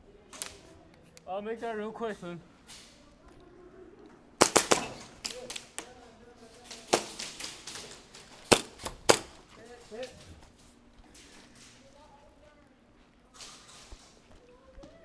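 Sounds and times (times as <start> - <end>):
airsoft guns firing: 4.4 - 6.0, 6.6 - 9.5.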